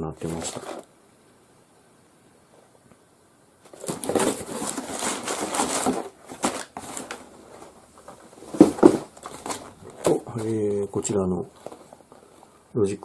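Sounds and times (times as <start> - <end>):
packaging rustling and crinkling: 0.2 - 0.9, 3.6 - 12.7.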